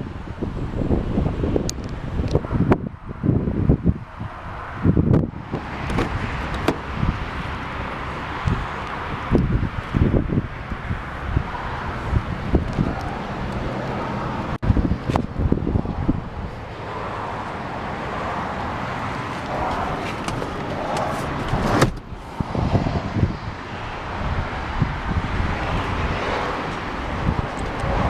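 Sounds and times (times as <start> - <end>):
low rumble of passing cars: 0.0 - 28.0
wind on microphone: 0.0 - 28.0
handling knocks: 5.8 - 7.0, 19.4 - 22.1.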